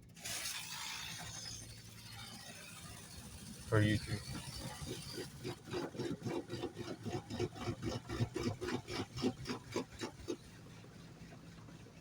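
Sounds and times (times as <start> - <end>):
rhythmic scraping strokes: 3.7 - 10.4.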